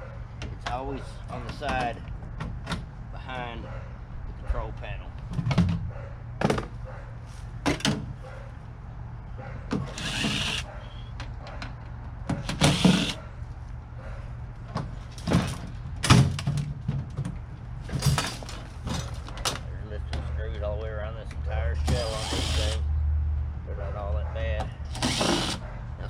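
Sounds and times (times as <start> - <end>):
power drill running out screws: 9.9 - 10.7, 12.5 - 13.2, 21.8 - 22.8, 24.9 - 25.6
metal knocks and clanks: 14.7 - 20.4.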